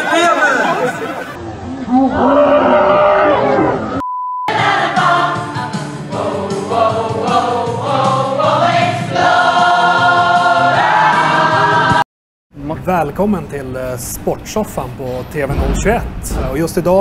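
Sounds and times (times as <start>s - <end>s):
short beep tone: 4.0s - 4.5s
choir singing: 4.5s - 12.0s.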